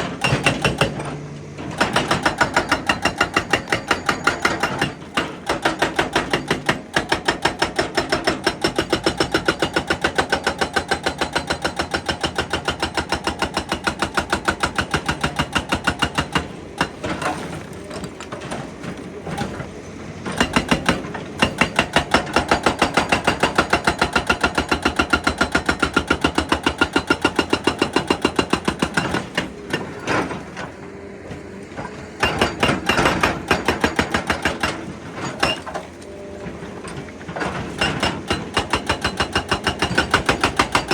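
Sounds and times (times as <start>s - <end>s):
hydraulic breaker hammering rock: 0.0s - 40.9s.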